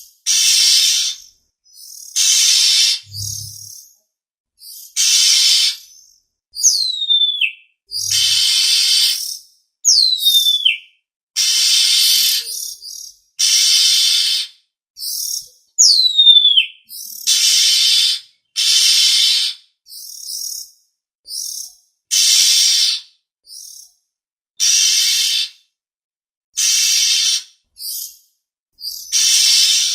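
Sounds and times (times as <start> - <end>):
harsh hissy bird calls: 0.2 - 3.7, 4.8 - 6.0, 7.9 - 9.4, 11.4 - 15.4, 16.5 - 20.6, 21.3 - 23.8, 24.6 - 25.6, 26.6 - 28.1, 28.8 - 29.9.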